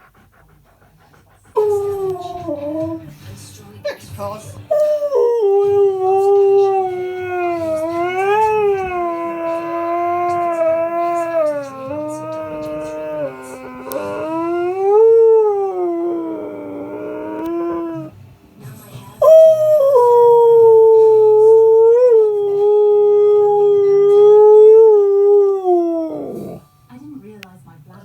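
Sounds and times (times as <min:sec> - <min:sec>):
husky howling: 0:01.6 - 0:03.1, 0:04.7 - 0:18.2, 0:19.2 - 0:26.7.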